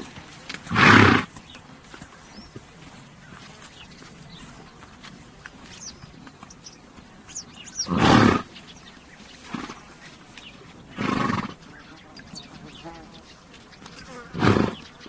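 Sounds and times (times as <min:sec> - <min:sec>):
horse snorting: 0:00.0 - 0:01.6, 0:06.0 - 0:08.8, 0:09.4 - 0:12.0, 0:14.0 - 0:15.0
small birds chirping: 0:00.0 - 0:15.0.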